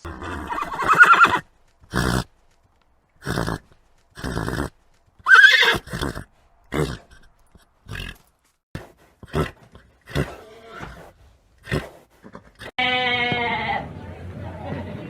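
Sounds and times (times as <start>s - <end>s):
animal giving harsh calls: 0.0s - 2.2s
animal bleating: 10.1s - 11.0s, 12.6s - 13.9s.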